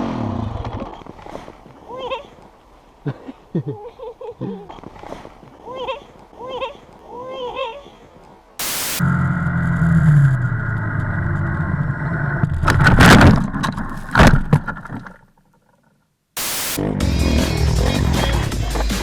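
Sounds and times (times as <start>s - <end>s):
bursts of hiss: 8.6s - 9.0s, 16.4s - 19.0s.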